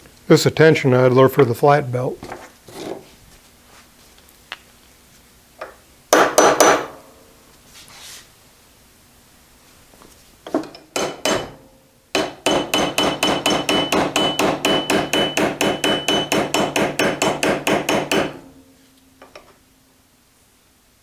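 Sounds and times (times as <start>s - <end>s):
hammer blows on steel: 11.0s - 18.8s.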